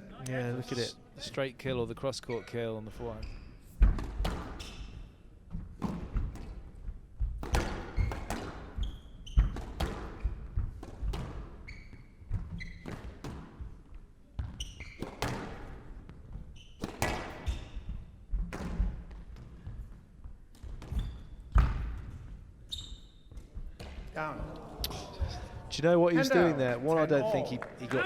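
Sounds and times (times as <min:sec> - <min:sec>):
court shoes squeaking: 0:02.3 - 0:06.6, 0:07.4 - 0:25.5
squash ball hits: 0:03.8 - 0:04.9, 0:05.8 - 0:11.6, 0:12.3 - 0:13.6, 0:14.4 - 0:15.8, 0:16.8 - 0:19.6, 0:20.6 - 0:22.2.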